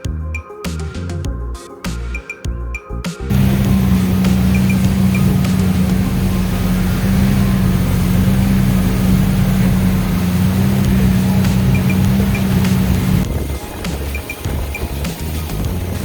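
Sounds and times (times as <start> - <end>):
motorboat engine droning: 3.3 - 16.0.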